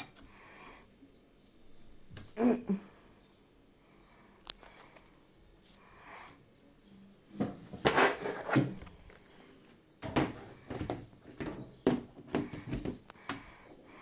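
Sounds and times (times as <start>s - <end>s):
washing machine drum tumbling laundry: 10.0s - 13.0s.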